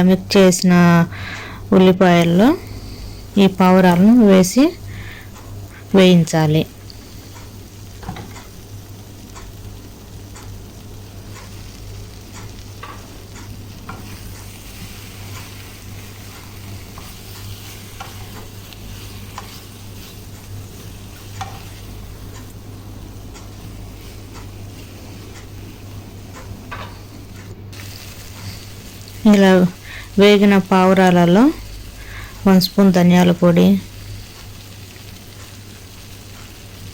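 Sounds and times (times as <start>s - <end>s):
food sizzling in a pan: 0.0s - 36.9s
spoon scraping a pan: 13.8s - 21.9s.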